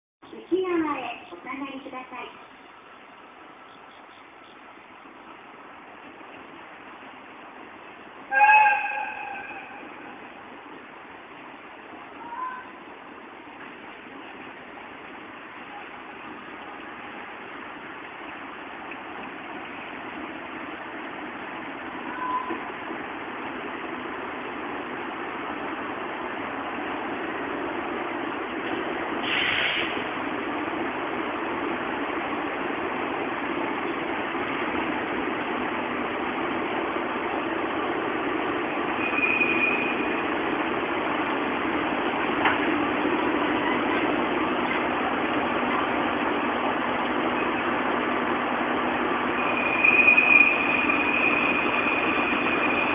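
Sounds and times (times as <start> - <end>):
train approaching: 0.2 - 52.9
short hiss: 29.2 - 30.0
high-pitched squeal: 39.0 - 40.2, 49.4 - 52.9.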